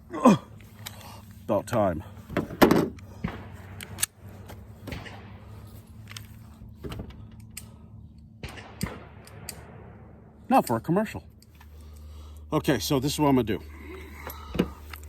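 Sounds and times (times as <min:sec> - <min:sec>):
gear clicking and rattling: 0:00.3 - 0:09.5, 0:13.7 - 0:15.0.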